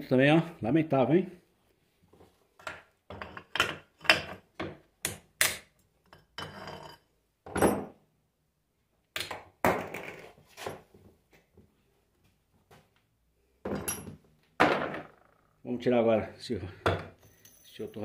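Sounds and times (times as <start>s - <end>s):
tools clattering on workbench: 6.1s - 8.0s, 13.6s - 15.2s.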